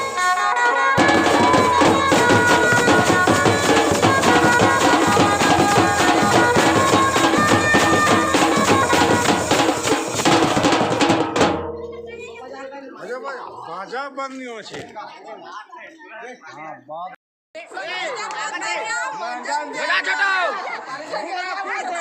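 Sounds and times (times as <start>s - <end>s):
reedy wind instrument: 0.0s - 10.7s
fast steady drumming: 1.0s - 12.5s.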